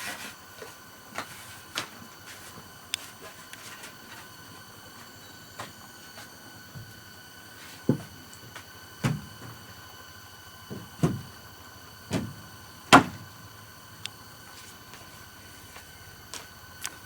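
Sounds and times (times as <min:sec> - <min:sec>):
faint high-pitched whine: 0:00.0 - 0:17.0
knocks and thuds: 0:10.7 - 0:11.3.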